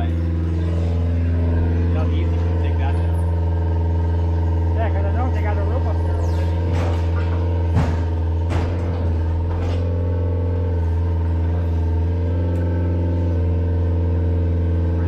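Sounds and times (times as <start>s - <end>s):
heavy machine engine running: 0.0s - 15.0s
sharp knocks: 6.6s - 10.0s.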